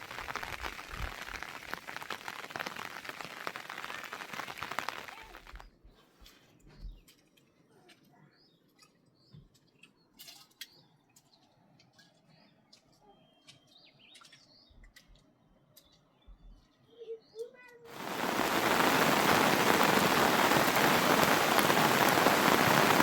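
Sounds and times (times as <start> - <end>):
faint bird chirps: 11.9 - 15.1, 15.7 - 17.7.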